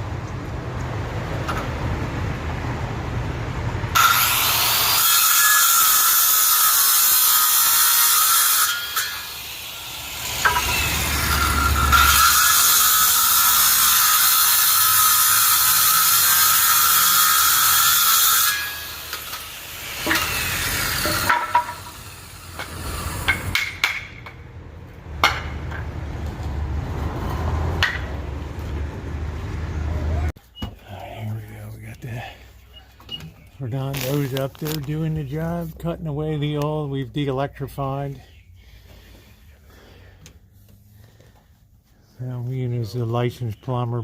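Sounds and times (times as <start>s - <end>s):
power tool cutting: 4.0s - 23.4s.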